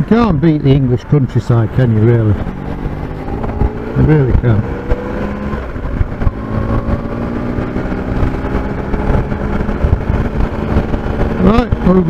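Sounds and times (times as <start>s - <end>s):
motorcycle engine cruising: 0.0s - 12.0s
wind noise rumble: 0.0s - 12.0s.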